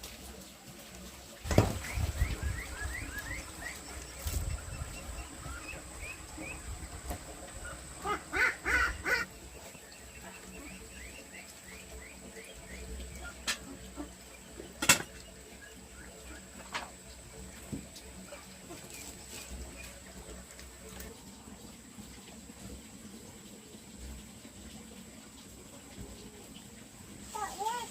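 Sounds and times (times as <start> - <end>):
chicks peeping: 1.5 - 13.4.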